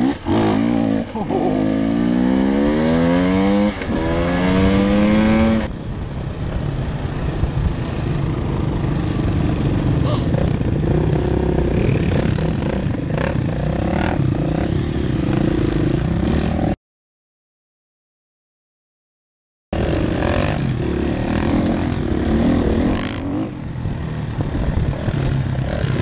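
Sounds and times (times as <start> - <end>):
motorcycle engine accelerating: 0.0 - 16.8, 19.8 - 26.0.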